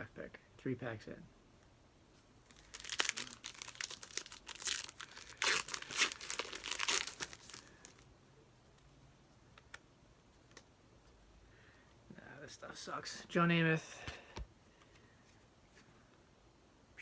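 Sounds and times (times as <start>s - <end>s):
wrapper tearing and crinkling: 2.5s - 8.0s.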